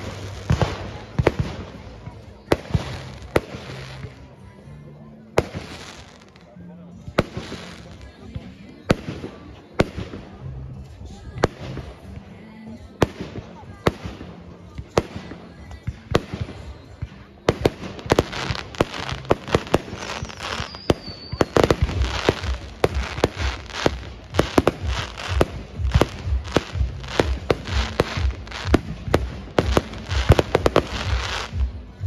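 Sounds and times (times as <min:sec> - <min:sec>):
fireworks bursting bangs: 0:00.0 - 0:04.2, 0:13.0 - 0:31.7
firework high whistle: 0:20.2 - 0:22.1.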